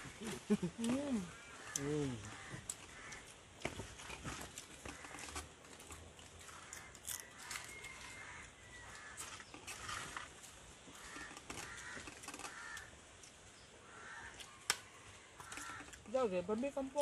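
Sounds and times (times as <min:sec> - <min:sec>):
bird cawing faintly: 0:01.2 - 0:03.4, 0:04.3 - 0:05.5, 0:06.4 - 0:10.2, 0:10.9 - 0:13.0, 0:13.8 - 0:16.1.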